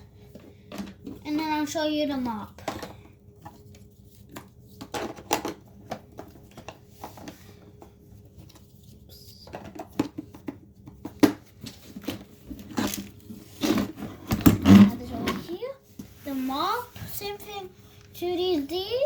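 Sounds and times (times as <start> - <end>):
plastic parts clicking and knocking: 2.6 - 3.0, 4.3 - 7.4, 9.5 - 11.4.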